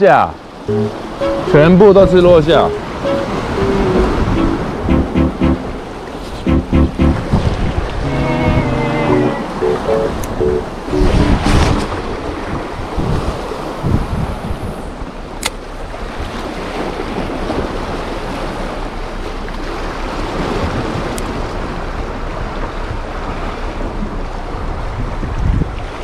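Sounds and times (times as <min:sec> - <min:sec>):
sea surf washing on shore: 0:00.0 - 0:26.0
wind buffeting microphone: 0:07.2 - 0:08.8, 0:10.1 - 0:15.1, 0:24.6 - 0:26.0.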